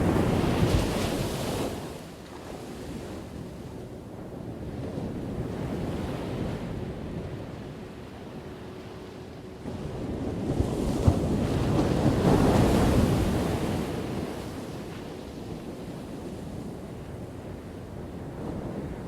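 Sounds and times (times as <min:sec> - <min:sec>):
ocean waves crashing: 0:00.0 - 0:02.0.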